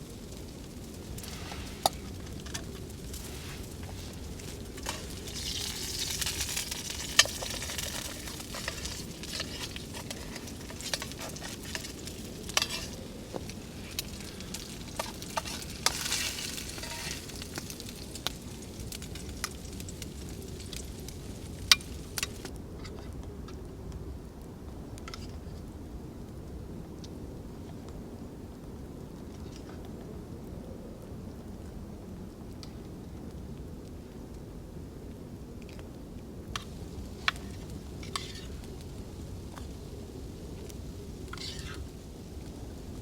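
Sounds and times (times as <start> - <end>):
food sizzling in a pan: 1.1 - 22.5, 36.6 - 42.4.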